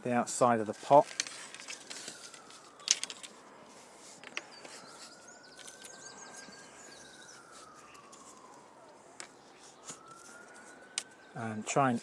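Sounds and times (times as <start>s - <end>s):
faint distant siren: 0.0s - 12.0s
small birds chirping: 4.3s - 8.5s.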